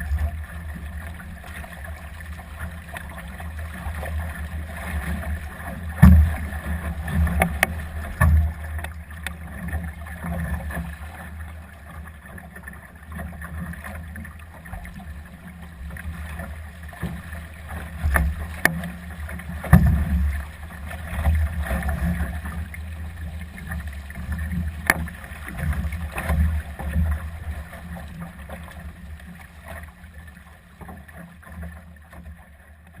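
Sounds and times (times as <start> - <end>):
water noise from hull: 0.0 - 33.0
boat knocks: 2.6 - 11.0, 13.2 - 29.9.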